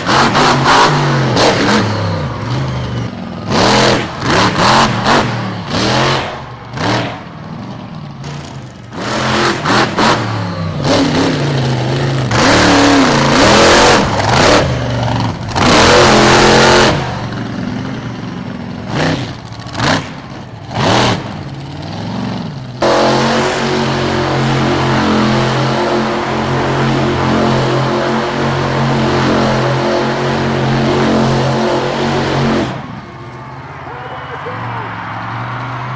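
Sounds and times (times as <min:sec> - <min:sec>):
truck engines revving: 0:00.0 - 0:35.9.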